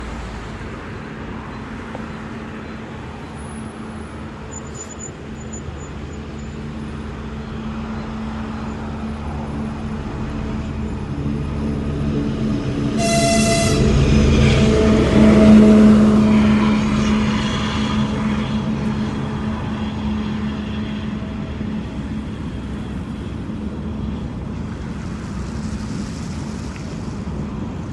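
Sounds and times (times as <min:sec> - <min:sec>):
diesel locomotive engine drone: 0:00.0 - 0:27.9
short high train horn blast: 0:11.3 - 0:21.5.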